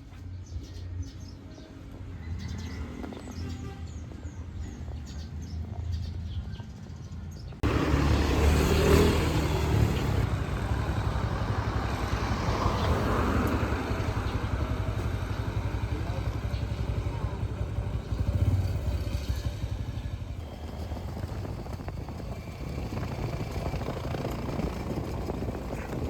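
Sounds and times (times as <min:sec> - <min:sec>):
birds chirping: 0:00.0 - 0:26.0
motor vehicle engine running: 0:04.5 - 0:26.0
low engine hum: 0:07.5 - 0:26.0.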